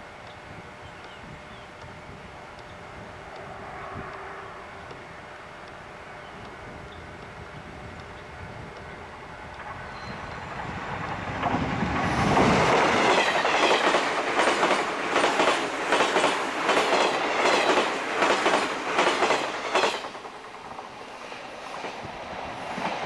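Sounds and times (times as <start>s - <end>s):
train passing at speed: 1.9s - 23.0s
wheels clicking over rail joints: 2.6s - 21.0s.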